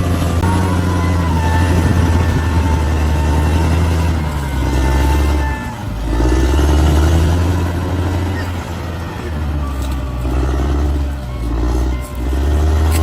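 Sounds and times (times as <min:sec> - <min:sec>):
bulldozer diesel engine running: 0:00.0 - 0:13.0.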